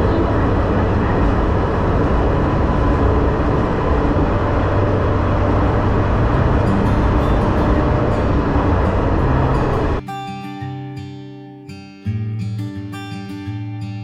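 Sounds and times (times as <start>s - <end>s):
diesel railcar running: 0.0s - 10.0s.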